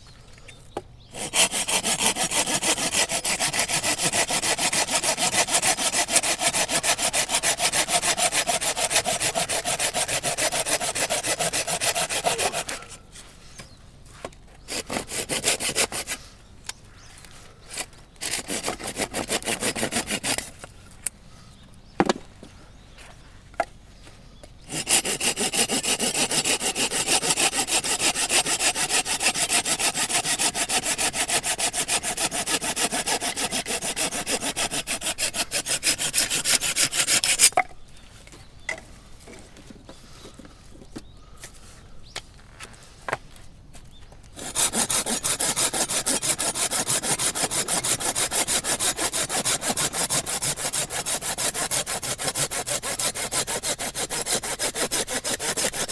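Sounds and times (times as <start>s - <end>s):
hand saw cutting log: 1.0s - 16.3s, 17.7s - 20.7s, 24.6s - 37.7s, 44.3s - 55.9s.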